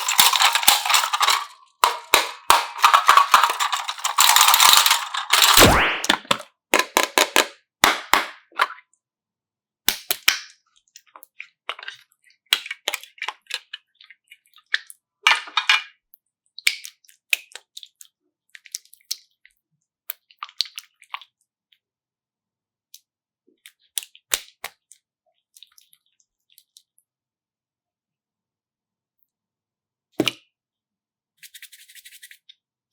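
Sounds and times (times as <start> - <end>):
small objects clicking and crackling: 0.0 - 6.2.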